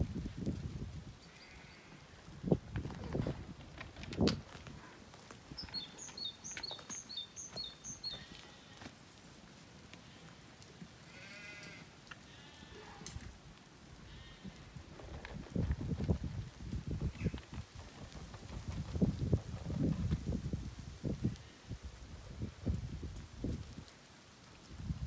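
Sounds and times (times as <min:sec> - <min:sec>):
bird chirping: 0:05.5 - 0:08.3
sheep bleating: 0:11.0 - 0:13.1.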